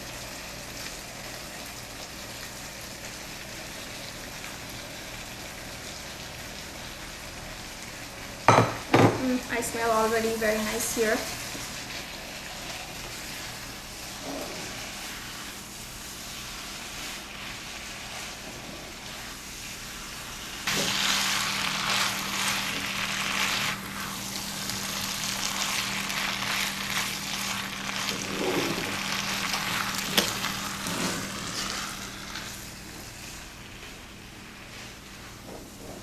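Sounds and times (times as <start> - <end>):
noodles sizzling in a hot pan: 0.0 - 36.0
sharp knock on pan: 8.5 - 9.2.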